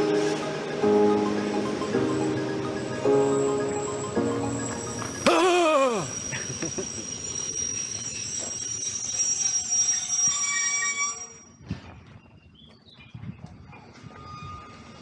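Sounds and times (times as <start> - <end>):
train rolling noise: 0.0 - 11.0
train wheels squealing on rails: 0.1 - 12.0, 13.8 - 15.0.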